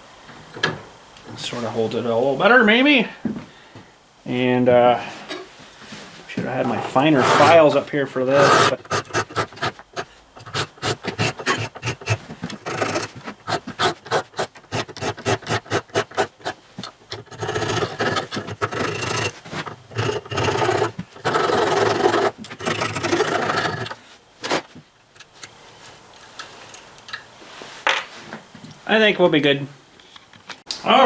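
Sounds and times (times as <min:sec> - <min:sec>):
hand file rasping on metal tube: 0:07.1 - 0:07.6, 0:08.3 - 0:24.0.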